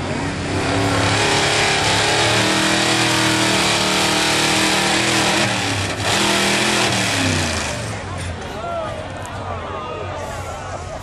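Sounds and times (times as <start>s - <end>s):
truck engine at high revs: 0.0s - 8.5s.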